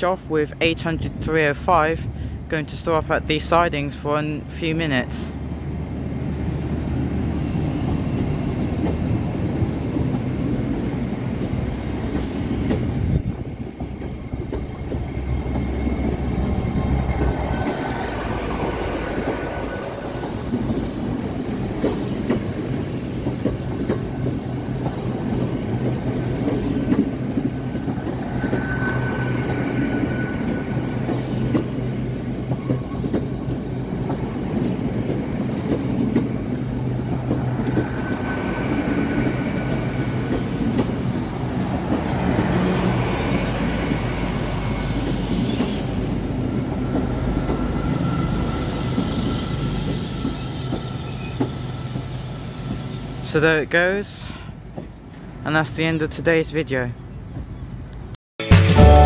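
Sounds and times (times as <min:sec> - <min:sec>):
train diesel engine hum: 0:00.0 - 0:55.4.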